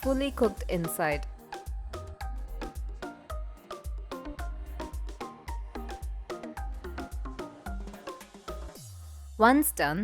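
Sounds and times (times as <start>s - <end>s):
steady bass beat: 0.0s - 7.9s.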